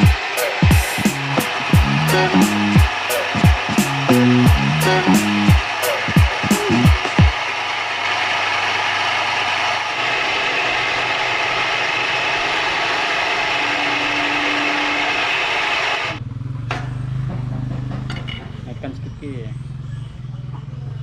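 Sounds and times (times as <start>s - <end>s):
metalworking power tool running: 0.0s - 16.2s.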